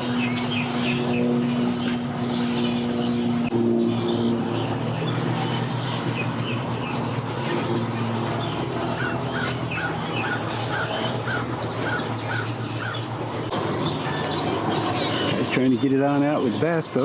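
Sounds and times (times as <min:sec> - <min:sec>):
engine humming: 0:00.0 - 0:17.0
higher bird chirps: 0:08.2 - 0:15.9.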